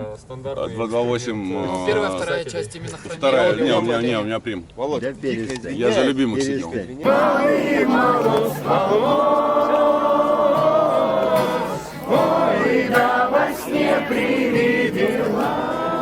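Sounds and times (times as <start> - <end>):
person singing long notes: 7.0 - 16.0.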